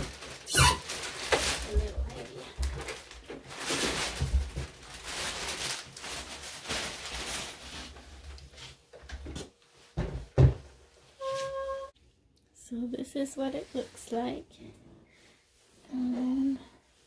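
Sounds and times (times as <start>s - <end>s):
plastic and foam packing rustling: 0.0s - 11.9s.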